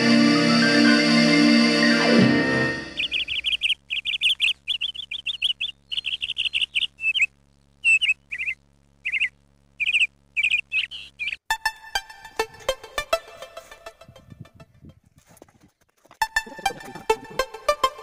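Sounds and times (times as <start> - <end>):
songbird chirping: 2.9 - 11.4.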